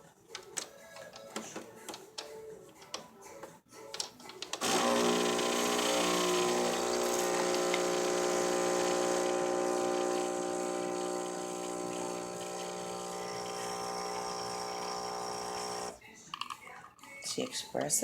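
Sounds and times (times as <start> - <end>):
coffee machine pump humming: 4.6 - 16.0.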